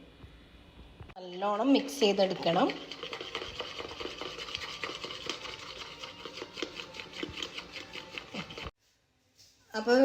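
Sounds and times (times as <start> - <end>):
spoon scraping and clicking on bowl: 2.3 - 8.7.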